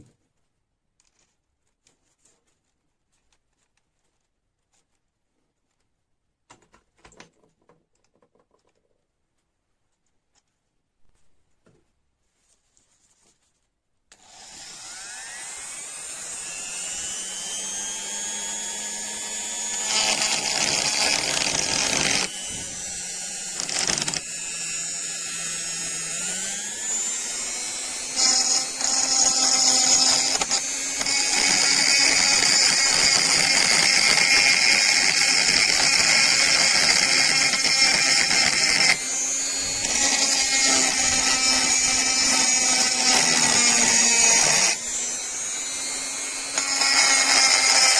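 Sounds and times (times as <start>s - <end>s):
electric power tool spinning: 14.1s - 47.9s
tool grinding rusty steel: 14.2s - 47.9s.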